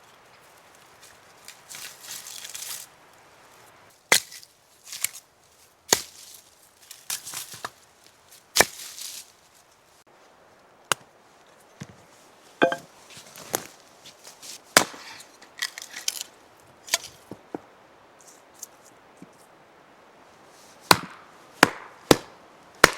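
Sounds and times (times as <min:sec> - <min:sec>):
blade chopping into wood: 0:04.1 - 0:04.4, 0:14.8 - 0:16.2, 0:20.9 - 0:22.9.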